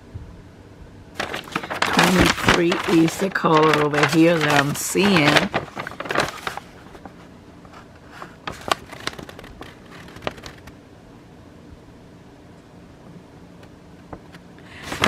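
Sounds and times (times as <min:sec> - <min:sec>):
soft clicks and rustles: 0:01.2 - 0:10.8.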